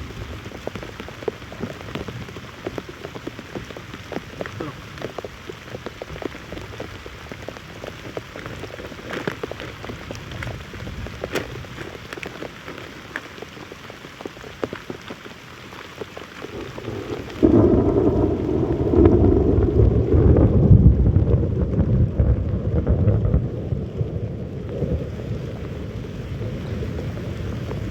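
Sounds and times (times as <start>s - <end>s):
heavy rain: 0.0s - 27.9s
raindrops ticking on surface: 0.0s - 27.9s
loud low rumble: 17.4s - 27.9s.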